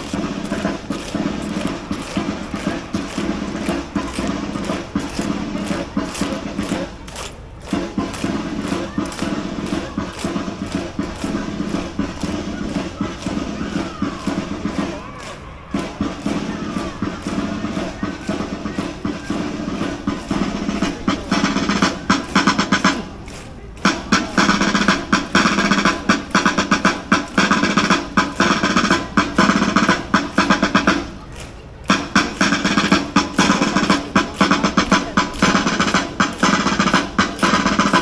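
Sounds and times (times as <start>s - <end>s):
bass drum: 0.0s - 15.0s, 15.7s - 31.2s, 31.8s - 38.0s
snare drum rolls: 0.0s - 38.0s.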